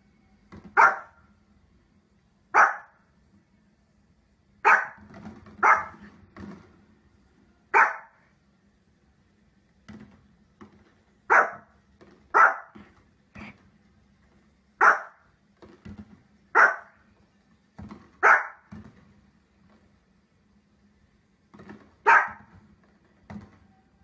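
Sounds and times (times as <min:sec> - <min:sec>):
dog barking: 0:00.8 - 0:01.2, 0:02.5 - 0:03.0, 0:04.6 - 0:05.0, 0:05.6 - 0:06.1, 0:07.7 - 0:08.2, 0:11.3 - 0:11.7, 0:12.3 - 0:12.8, 0:14.8 - 0:15.2, 0:16.5 - 0:17.0, 0:18.2 - 0:18.7, 0:22.0 - 0:22.5.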